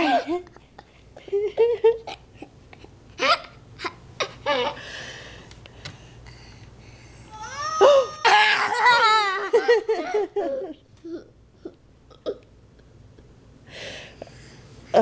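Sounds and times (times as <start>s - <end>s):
toddler giggling and laughing: 0.0s - 4.8s, 8.3s - 11.3s.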